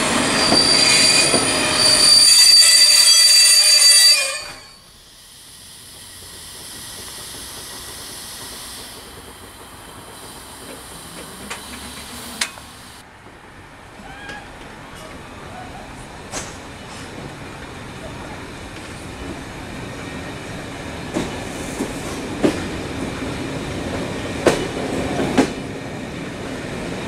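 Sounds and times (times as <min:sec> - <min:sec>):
high-pitched whistling squeal: 0:00.0 - 0:09.0.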